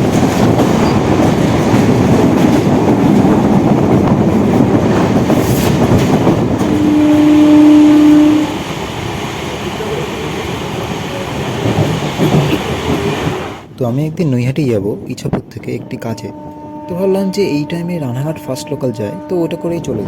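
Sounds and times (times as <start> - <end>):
train rumbling at speed: 0.0 - 20.0
train horn: 6.6 - 8.7, 15.8 - 20.0.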